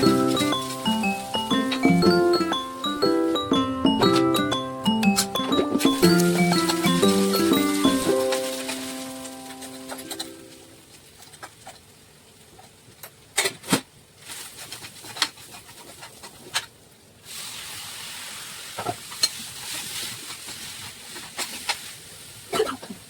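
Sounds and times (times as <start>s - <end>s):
food sizzling: 0.0s - 11.4s, 17.2s - 23.0s
utensils clinking against pan: 3.9s - 10.7s.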